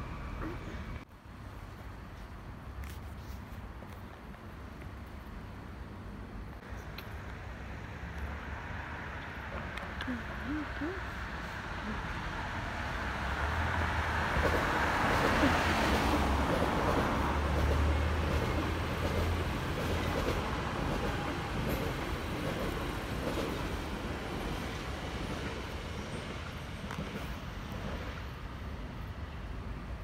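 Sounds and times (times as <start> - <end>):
train wheels rumbling on rails: 12.0 - 30.0.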